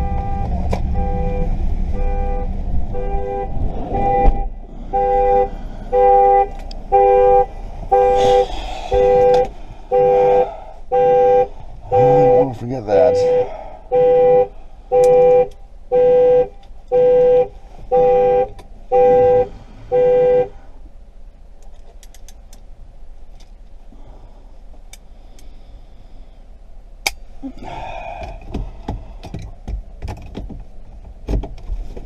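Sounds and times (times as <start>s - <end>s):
car horn honking: 0.0s - 20.7s.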